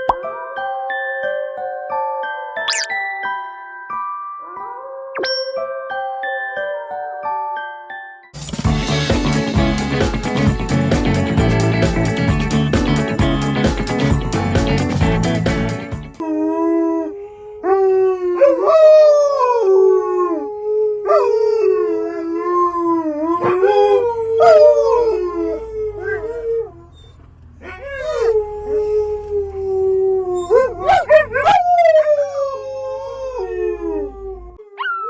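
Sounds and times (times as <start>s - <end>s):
dog howling: 18.0s - 35.0s.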